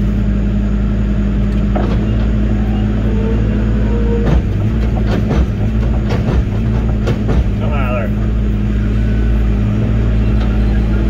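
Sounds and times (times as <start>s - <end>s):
diesel engine running: 0.0s - 11.0s
machine knocks: 4.1s - 8.3s.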